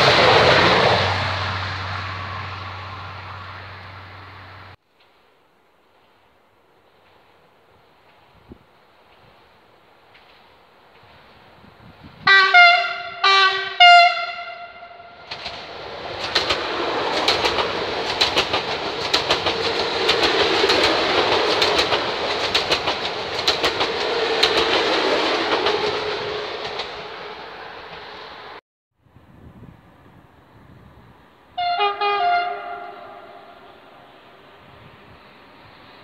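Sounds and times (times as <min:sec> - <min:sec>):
train rushing by: 0:00.0 - 0:04.8, 0:05.9 - 0:28.6, 0:29.4 - 0:36.0
train wheels clicking over joints: 0:08.0 - 0:11.3, 0:15.2 - 0:28.2
train horn blasts: 0:12.2 - 0:15.3, 0:31.6 - 0:34.0.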